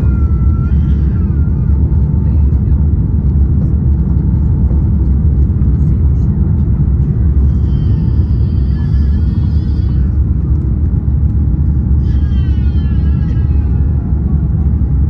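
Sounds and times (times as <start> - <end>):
faint voice: 0.0 - 3.8
airplane cabin rumble: 0.0 - 15.0.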